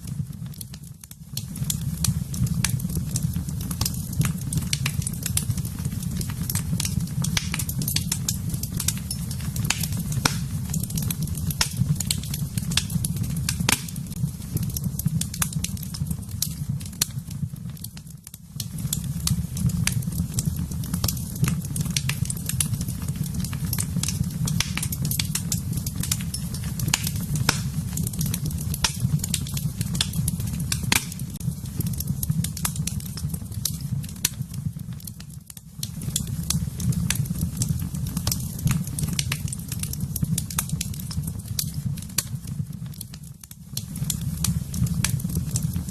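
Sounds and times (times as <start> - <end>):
wood fire crackling and popping: 0.0 - 45.9.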